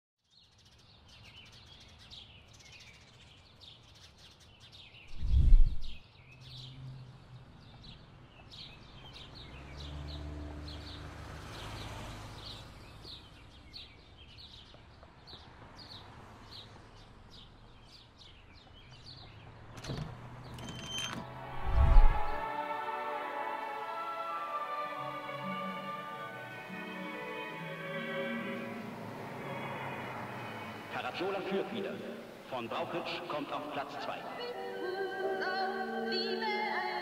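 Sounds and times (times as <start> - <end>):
bird chirping: 0.2 - 22.5
low outdoor rumble: 21.4 - 22.4.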